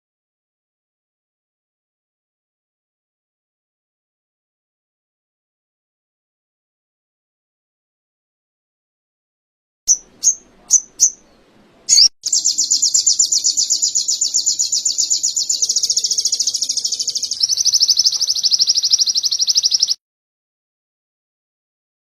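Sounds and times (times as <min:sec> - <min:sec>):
songbird chirping and trilling: 0:09.9 - 0:20.0.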